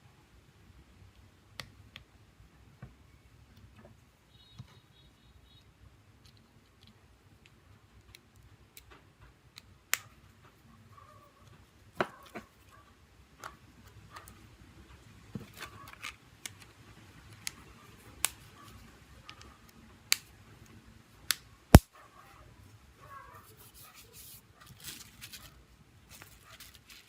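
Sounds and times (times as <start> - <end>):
soft rustling: 23.3 - 27.0.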